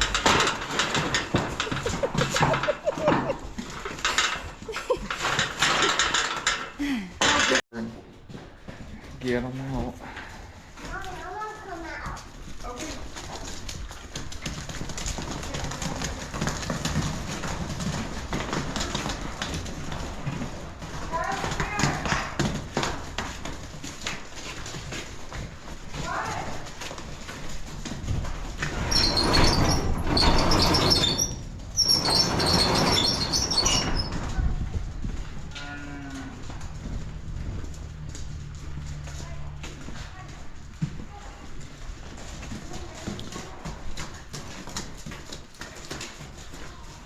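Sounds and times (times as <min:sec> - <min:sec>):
cattle hooves clattering: 0:00.0 - 0:47.0
sharp high squeaks: 0:28.8 - 0:34.3.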